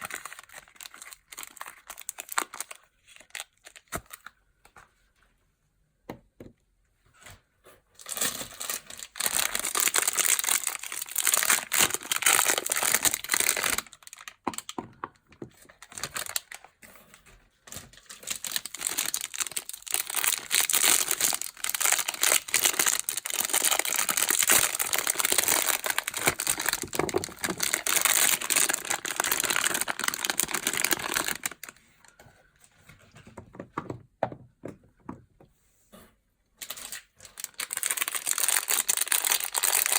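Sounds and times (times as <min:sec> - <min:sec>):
packaging crinkling and tearing: 0:00.0 - 0:04.4, 0:08.0 - 0:14.8, 0:15.6 - 0:16.8, 0:17.6 - 0:31.8, 0:36.6 - 0:39.9.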